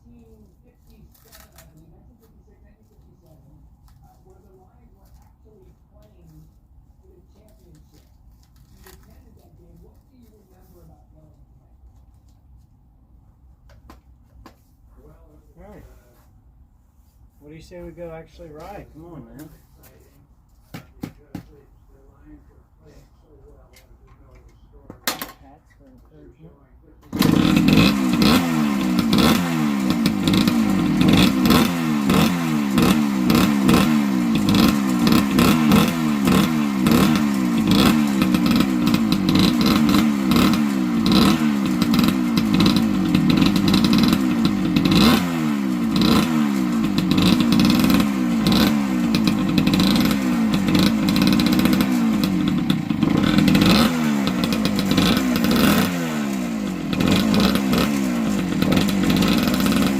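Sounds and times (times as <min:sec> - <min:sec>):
motorcycle engine revving: 0:27.0 - 0:59.9.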